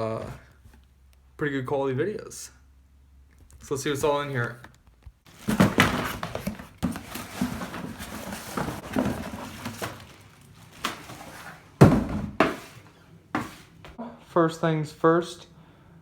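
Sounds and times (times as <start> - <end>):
packaging rustling: 5.3 - 11.9
items knocking when set down: 5.3 - 12.8.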